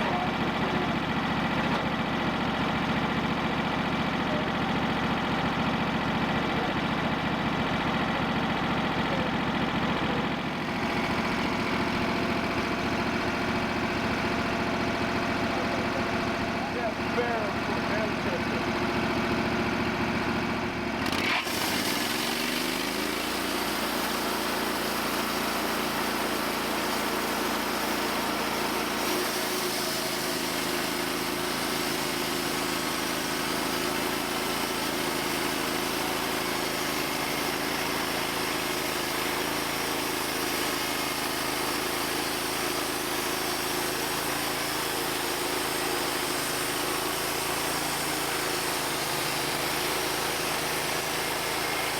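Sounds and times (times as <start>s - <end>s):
sawmill engine revving: 0.0s - 51.9s
band blade cutting log: 21.1s - 24.3s, 25.0s - 51.9s.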